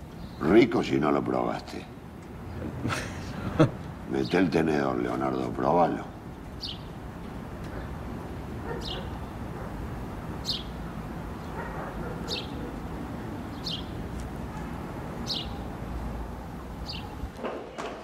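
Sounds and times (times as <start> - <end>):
small bird chirping: 6.6 - 7.0, 8.6 - 9.4, 10.4 - 10.8, 13.4 - 14.1, 15.2 - 15.7.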